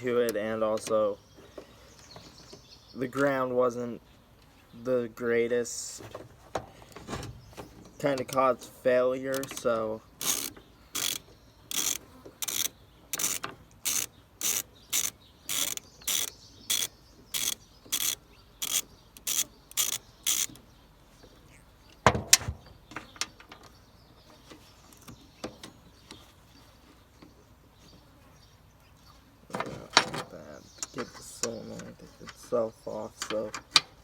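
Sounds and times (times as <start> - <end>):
ratchet wrench clicking: 9.3 - 20.6.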